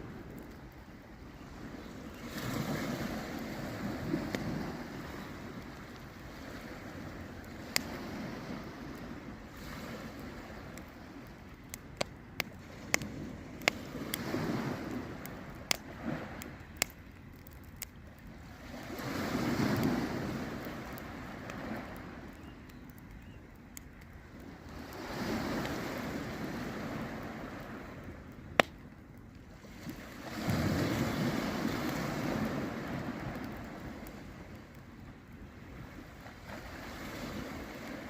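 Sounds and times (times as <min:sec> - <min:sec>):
wind on microphone: 0:00.0 - 0:11.5
waves washing onto shore: 0:00.0 - 0:22.6, 0:23.8 - 0:28.8, 0:29.4 - 0:38.0
campfire crackling: 0:00.0 - 0:38.0
burning wood popping: 0:01.8 - 0:08.2, 0:09.8 - 0:35.0.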